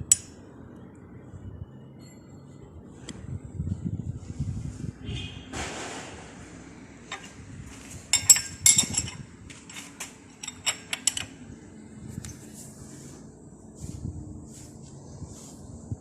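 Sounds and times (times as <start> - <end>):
metal tools clinking: 7.1 - 11.4.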